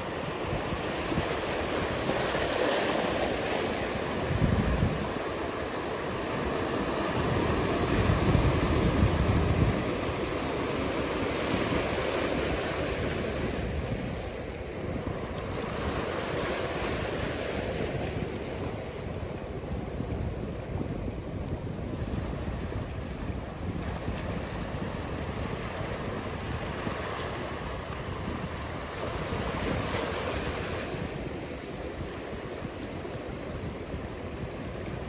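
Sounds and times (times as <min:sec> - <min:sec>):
ocean surf washing: 0:00.0 - 0:35.0
wind buffeting microphone: 0:00.0 - 0:35.0.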